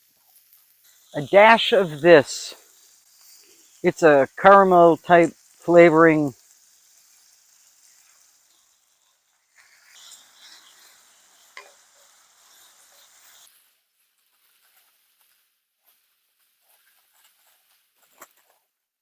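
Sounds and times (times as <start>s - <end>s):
stir fry sizzling in a pan: 0.0s - 18.6s
faint scattered ticks: 0.1s - 4.1s.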